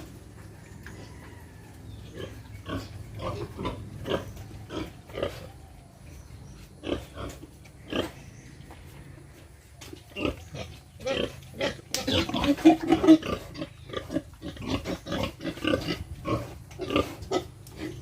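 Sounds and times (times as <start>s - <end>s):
pigs grunting: 2.0s - 5.7s, 6.8s - 8.4s, 9.0s - 18.0s.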